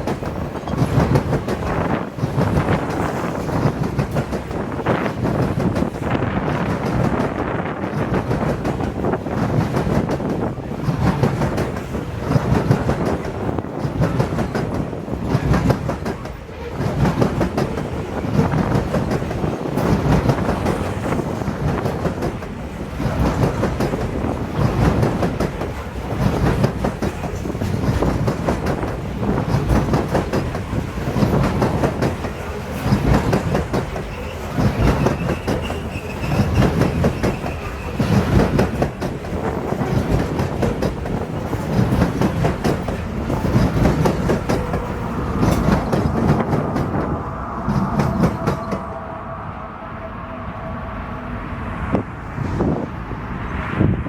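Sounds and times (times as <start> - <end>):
train cars rolling past: 0.0 - 54.0
high wheel squeal: 34.0 - 38.2.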